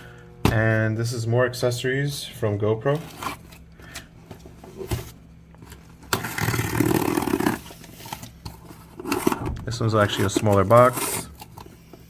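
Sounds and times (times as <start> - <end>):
packaging scraping and rustling: 4.6 - 11.8.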